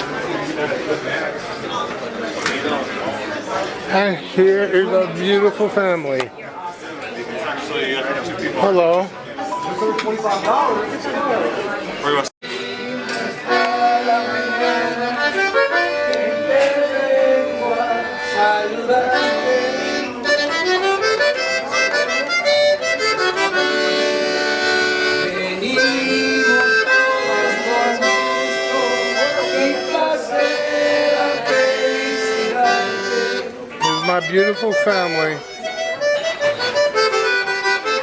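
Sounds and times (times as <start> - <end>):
accordion music: 12.4 - 38.0.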